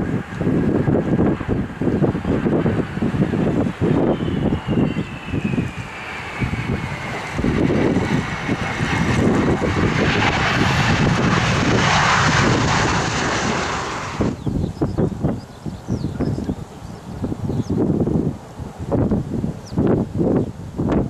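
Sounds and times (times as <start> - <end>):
jet engines passing: 0.0 - 21.0
wind buffeting microphone: 0.0 - 21.0
high whine sliding down: 2.5 - 14.5.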